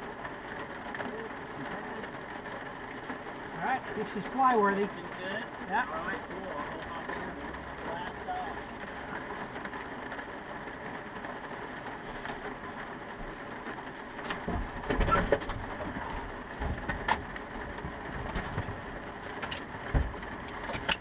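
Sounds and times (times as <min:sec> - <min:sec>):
rain patter: 0:00.0 - 0:21.0
knocks clicks and thumps: 0:14.2 - 0:21.0.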